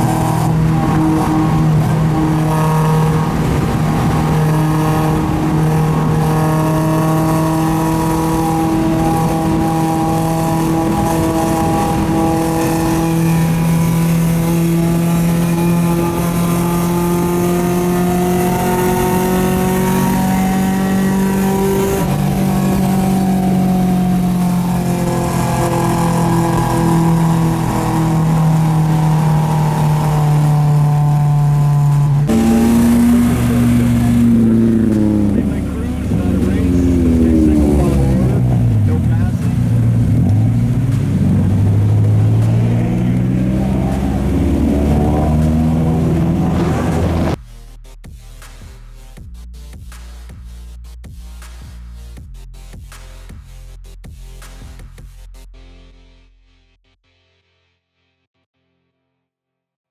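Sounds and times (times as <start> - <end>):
car engine at high revs: 0.0 - 47.4
tyre and wind rush: 25.3 - 47.4.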